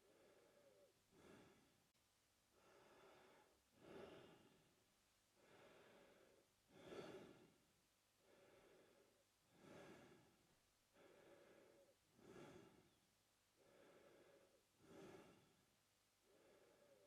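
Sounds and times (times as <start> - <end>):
man breathing through mouth: 11.0 - 12.8.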